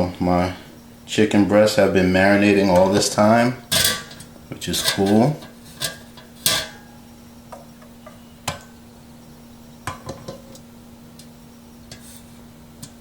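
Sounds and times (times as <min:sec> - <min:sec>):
faint steady hum: 0:00.0 - 0:13.0
kitchen utensils and dishes clicking: 0:03.6 - 0:06.9.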